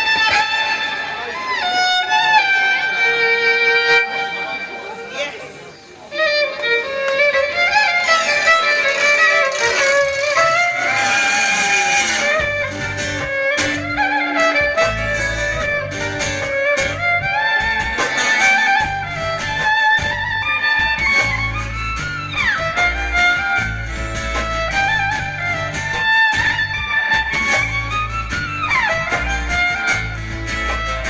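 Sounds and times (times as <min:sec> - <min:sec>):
fiddle sliding down in pitch: 0:06.1 - 0:23.7
live folk-rock band: 0:06.7 - 0:31.0.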